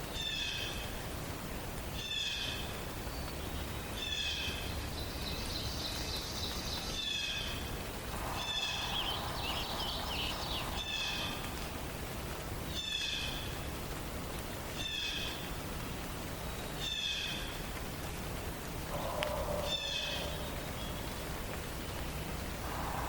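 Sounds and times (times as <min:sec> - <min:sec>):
bird warble: 0:08.1 - 0:11.8, 0:18.9 - 0:23.0.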